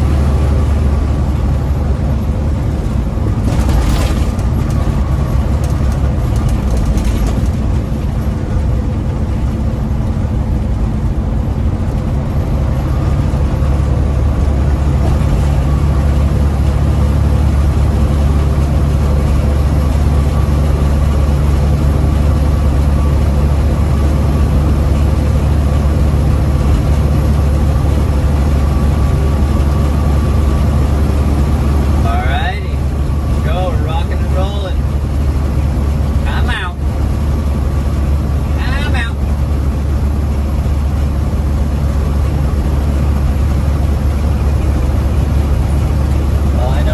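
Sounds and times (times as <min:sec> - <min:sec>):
diesel truck engine humming: 0:00.0 - 0:46.9.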